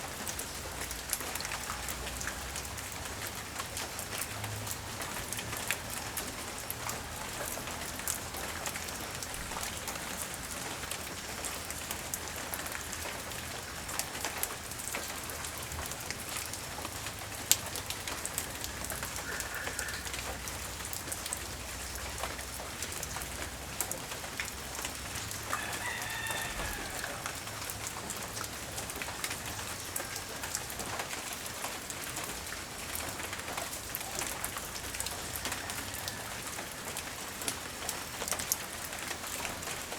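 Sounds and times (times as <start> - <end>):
light rain falling: 0.0 - 39.9
rooster crowing: 19.2 - 20.2, 25.5 - 27.8, 35.4 - 37.0.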